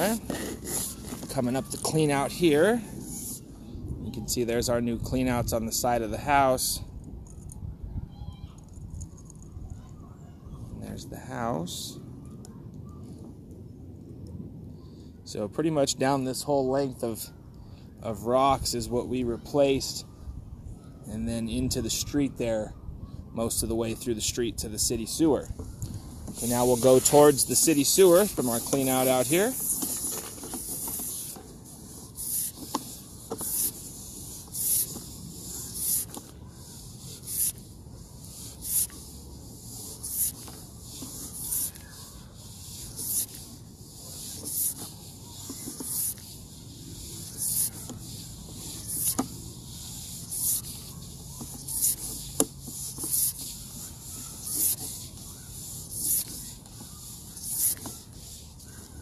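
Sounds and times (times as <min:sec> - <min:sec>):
push rod hissing rub: 0:00.0 - 0:02.2, 0:26.3 - 0:59.0.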